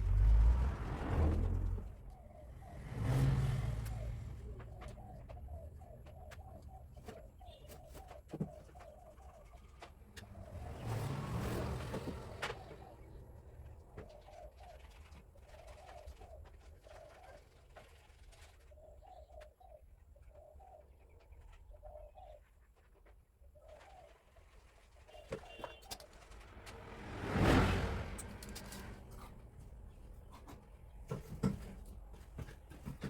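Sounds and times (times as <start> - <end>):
dove cooing: 1.9 - 22.5.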